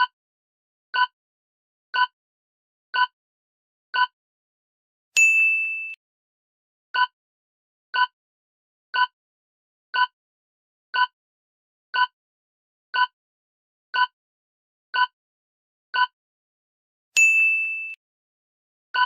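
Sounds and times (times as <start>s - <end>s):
clicky timer ticks: 11.0s - 11.2s, 12.0s - 12.2s, 14.0s - 14.2s.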